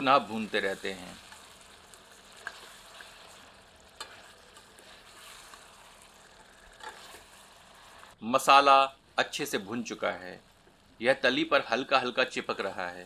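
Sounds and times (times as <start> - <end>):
chicken sizzling in a pot: 0.0 - 13.0
ladle stirring: 0.2 - 8.2.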